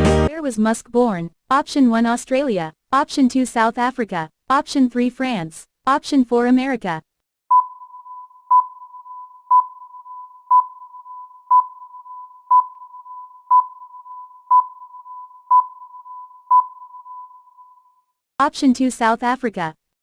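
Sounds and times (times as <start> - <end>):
countdown timer beeps: 7.5 - 17.6.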